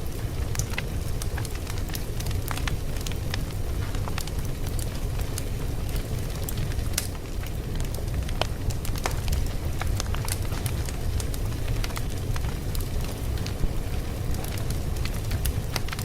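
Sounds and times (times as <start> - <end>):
fire crackling and popping: 0.0 - 16.0
low rumble of burning: 0.0 - 16.0.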